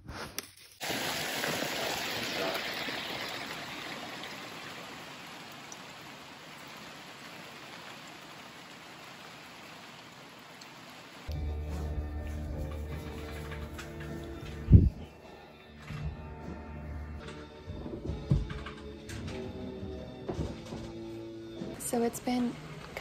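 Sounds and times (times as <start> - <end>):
steady rain falling: 0.8 - 11.4.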